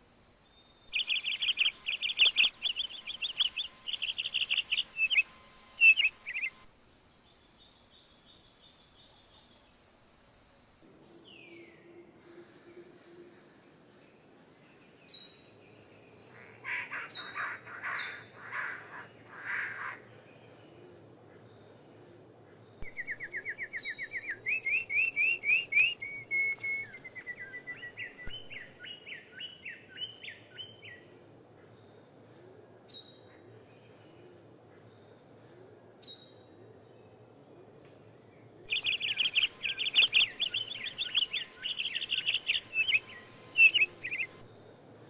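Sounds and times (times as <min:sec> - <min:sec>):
harsh raspy bird calls: 0:00.9 - 0:06.6, 0:16.3 - 0:20.1, 0:38.7 - 0:44.4
fast trilling birdsong: 0:00.9 - 0:06.7, 0:38.7 - 0:44.4.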